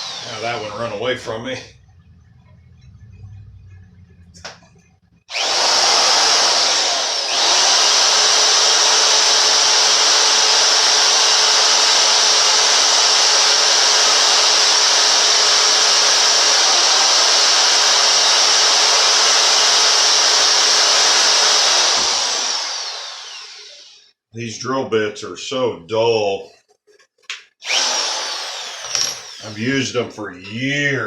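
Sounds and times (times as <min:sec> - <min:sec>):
electric drill boring through metal: 0:00.0 - 0:01.4, 0:05.3 - 0:24.1, 0:27.6 - 0:30.6.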